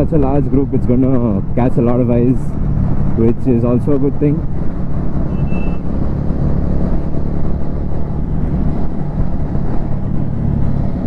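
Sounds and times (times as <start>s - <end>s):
motorcycle engine cruising: 0.0s - 11.0s
wind and road noise: 0.0s - 11.0s
short high beep: 5.3s - 5.8s.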